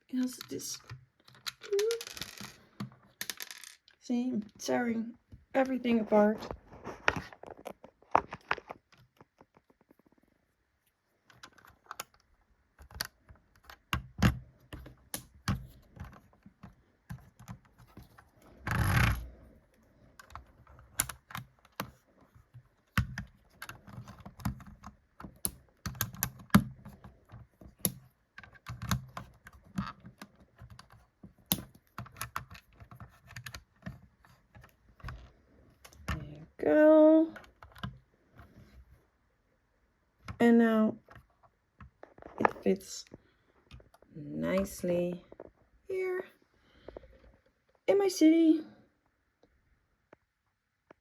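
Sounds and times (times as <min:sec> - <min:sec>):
plastic bricks clicking: 0:00.4 - 0:03.9.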